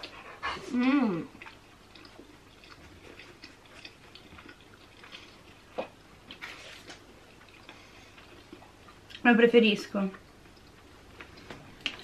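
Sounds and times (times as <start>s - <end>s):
people chewing: 0.0s - 9.3s, 9.9s - 12.0s.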